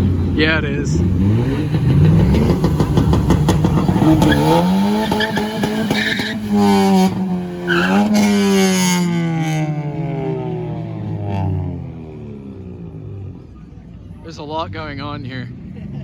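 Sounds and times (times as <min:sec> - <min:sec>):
engine at high revs: 0:00.0 - 0:13.4
tyre squeal: 0:04.2 - 0:06.6, 0:07.7 - 0:08.4.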